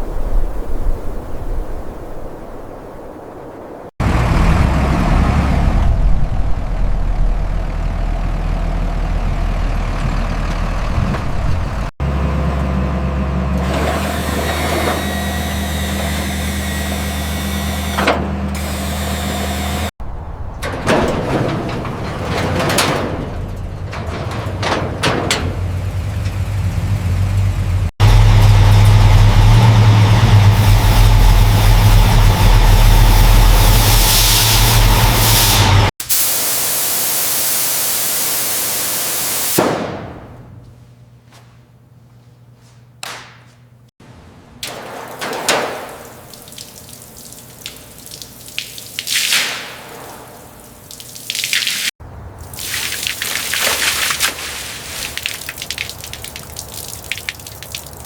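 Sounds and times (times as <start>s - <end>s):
machinery humming: 4.0s - 35.9s.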